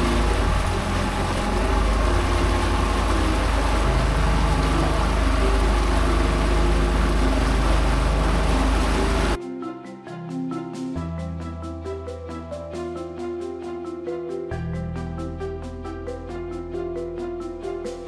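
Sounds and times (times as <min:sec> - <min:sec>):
engine running: 0:00.0 - 0:09.4
heavy low rumble: 0:00.0 - 0:09.4.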